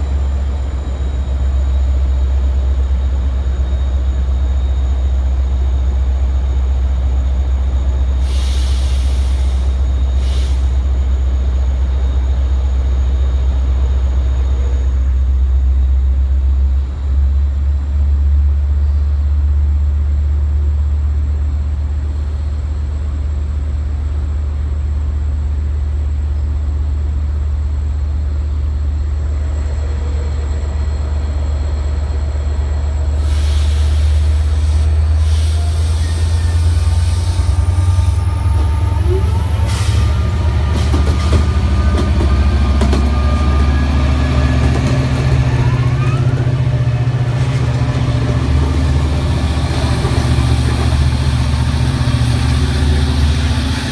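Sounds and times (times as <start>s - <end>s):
diesel train rumbling: 0.0s - 53.9s
short hissing bursts: 8.2s - 10.7s, 33.2s - 36.2s.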